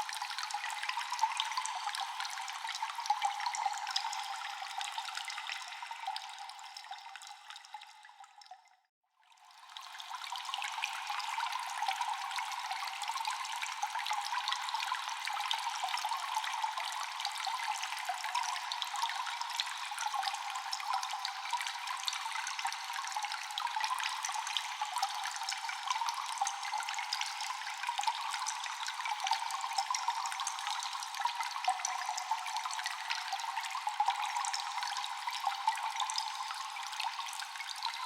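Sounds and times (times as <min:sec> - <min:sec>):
water dripping in cave: 0:00.0 - 0:38.0
water trickling: 0:09.6 - 0:38.0.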